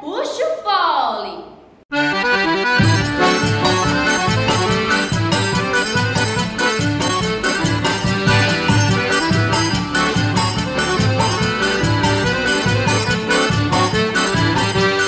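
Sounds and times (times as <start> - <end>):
accordion dance music: 1.9 - 15.0
steady beat: 1.9 - 15.0.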